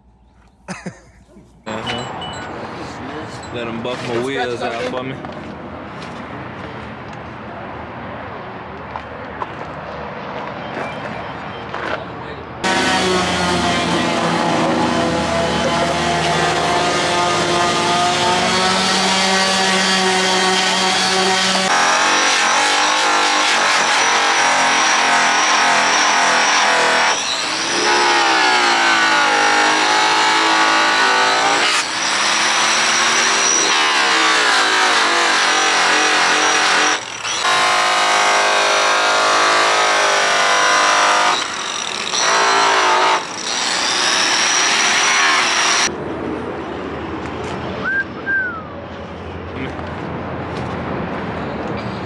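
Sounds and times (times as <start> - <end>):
electric polisher whining: 12.6 - 45.9.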